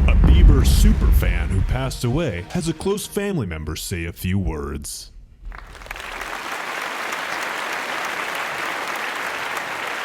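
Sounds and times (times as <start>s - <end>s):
audience applause: 5.5s - 10.0s.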